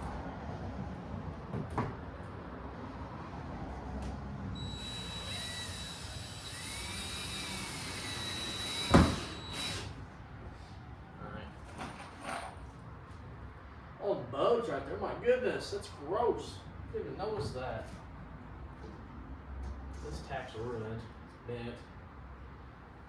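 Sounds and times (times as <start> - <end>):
cordless drill whining: 4.6 - 10.0.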